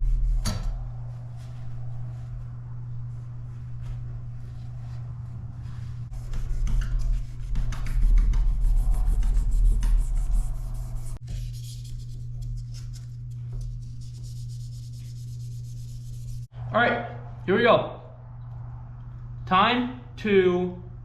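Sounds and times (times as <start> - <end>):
sandpaper rubbing on steel blade: 6.1 - 16.5.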